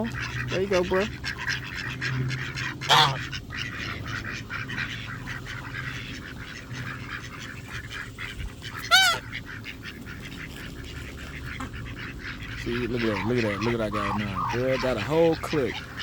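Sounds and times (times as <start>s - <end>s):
ducks calling: 0.0s - 16.0s
patter of flock sounds: 0.0s - 16.0s
loud short duck calls: 0.1s - 10.4s, 11.4s - 16.0s.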